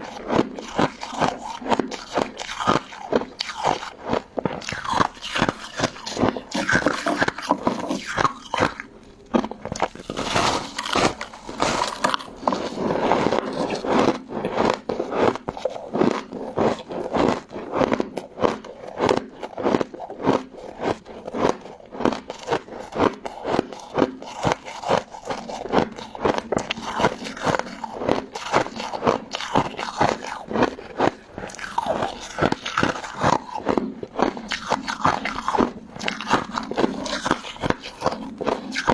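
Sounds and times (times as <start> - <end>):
crunchy chewing: 0.0 - 38.9.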